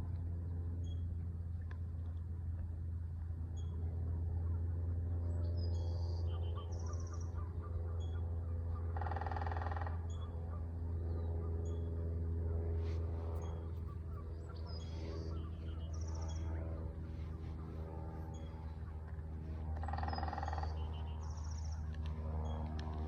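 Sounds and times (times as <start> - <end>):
low steady hum: 0.0 - 23.0
birds chirping: 13.0 - 23.0.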